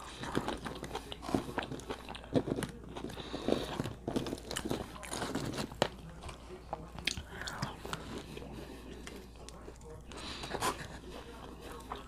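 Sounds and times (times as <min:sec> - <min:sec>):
person biting and chewing: 0:00.0 - 0:06.4.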